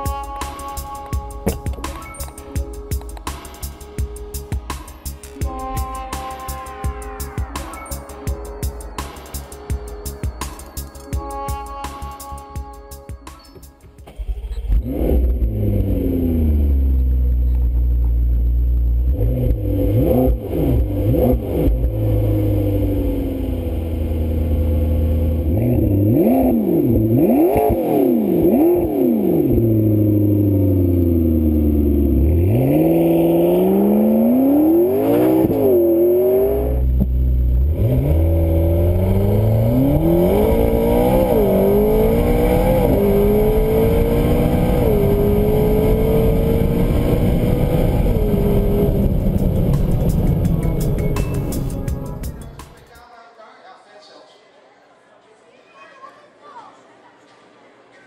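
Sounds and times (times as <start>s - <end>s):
car engine revving and accelerating: 14.1s - 51.8s.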